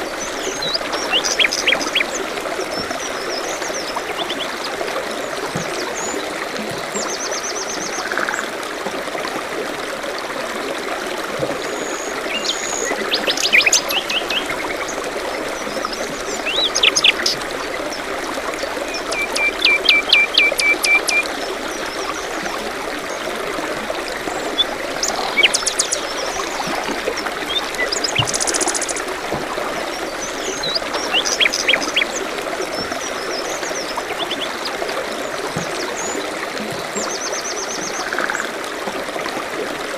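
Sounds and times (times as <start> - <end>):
songbirds chirping: 0.0 - 4.6, 11.8 - 36.3
small stream trickling: 0.0 - 39.9.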